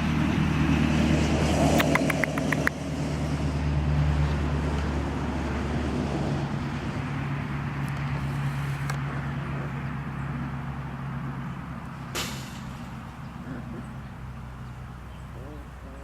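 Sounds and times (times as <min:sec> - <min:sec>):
low engine hum: 0:00.0 - 0:16.0
sharp click: 0:01.8 - 0:02.8.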